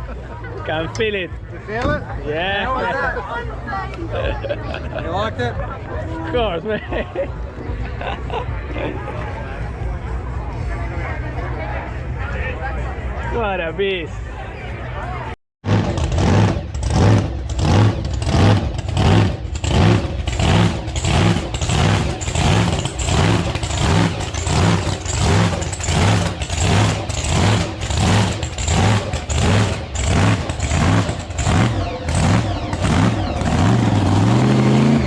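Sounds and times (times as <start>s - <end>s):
car engine idling with a lope: 16.0s - 35.0s.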